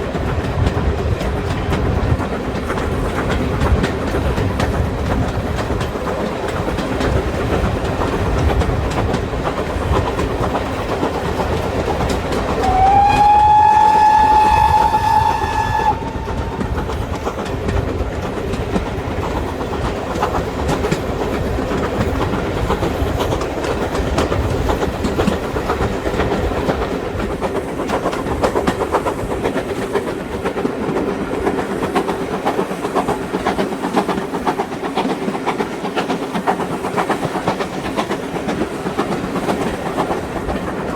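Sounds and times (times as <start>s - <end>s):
train wheels clattering on rails: 0.0s - 40.9s
steam locomotive whistle: 12.6s - 16.8s.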